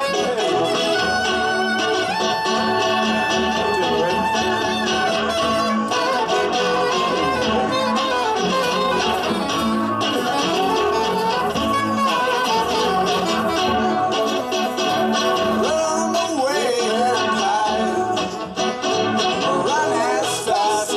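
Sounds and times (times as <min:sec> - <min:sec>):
wind instrument gliding melody: 0:00.0 - 0:16.4
guitar rhythm: 0:00.0 - 0:20.9.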